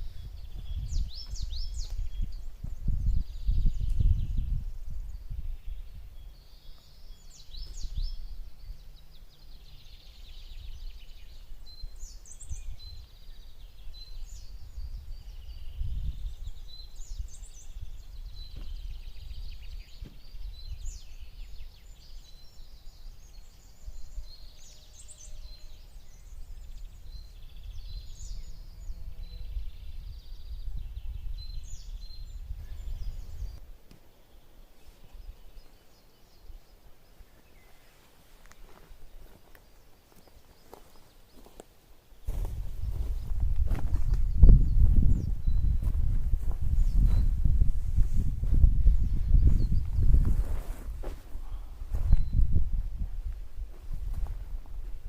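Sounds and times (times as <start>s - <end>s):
bird chirping: 0.0s - 52.6s
faint bird calls: 50.5s - 52.4s.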